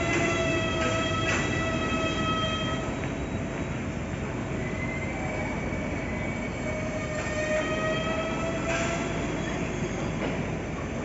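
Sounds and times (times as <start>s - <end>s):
freight train wheels rumbling: 0.0s - 11.0s
high whining wheel squeal: 4.5s - 10.2s.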